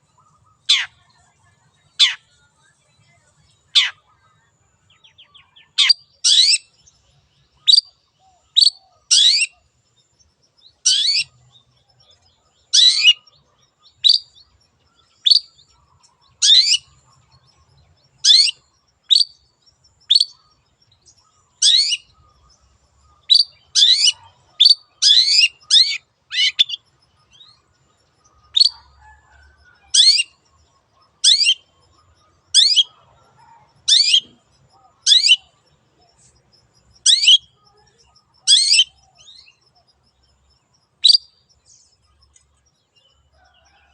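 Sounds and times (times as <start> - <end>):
shrike calling: 32.5 - 35.6, 37.0 - 39.6.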